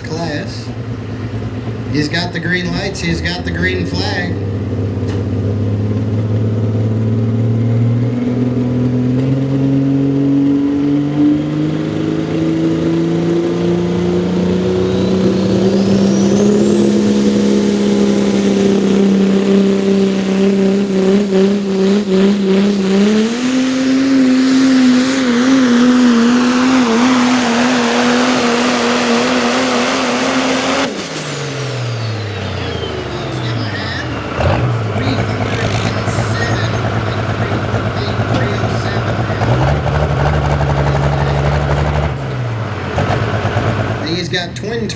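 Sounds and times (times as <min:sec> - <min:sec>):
diesel truck engine under load: 0:00.0 - 0:44.9
high rising whistle: 0:14.5 - 0:34.3.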